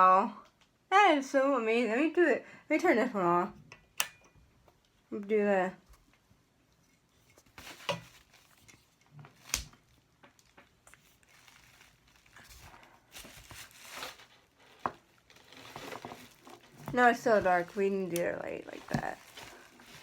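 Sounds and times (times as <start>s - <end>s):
ring light clicks and knocks: 3.7s - 4.4s
soft rustling: 5.9s - 20.0s.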